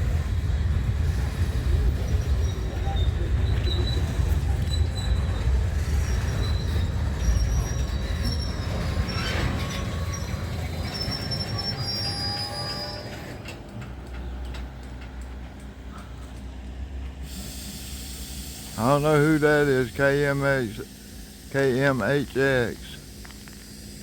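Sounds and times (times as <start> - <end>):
freight train wheels rumbling: 0.0 - 24.0
high wheel squeal: 1.8 - 13.6.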